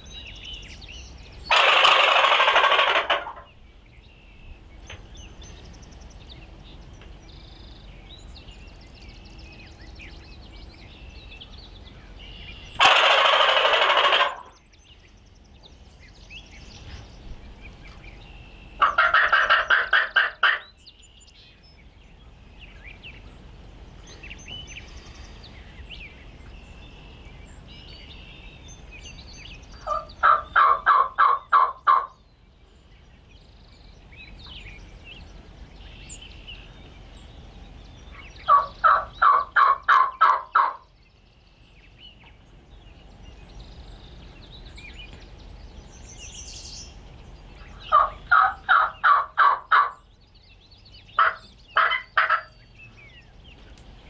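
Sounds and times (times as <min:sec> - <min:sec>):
faint songbird chirps: 0:00.0 - 0:54.0
turkey yelping: 0:01.5 - 0:03.5, 0:12.8 - 0:14.5, 0:18.8 - 0:20.7, 0:29.8 - 0:32.2, 0:38.4 - 0:40.9, 0:47.7 - 0:50.0, 0:51.2 - 0:52.5.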